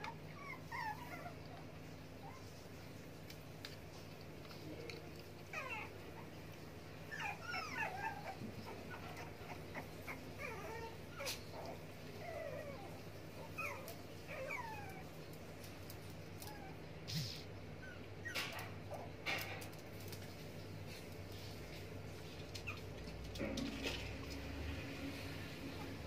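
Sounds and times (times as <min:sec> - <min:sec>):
puppies whimpering and yipping: 0:00.0 - 0:02.6, 0:05.5 - 0:15.2, 0:17.8 - 0:19.1.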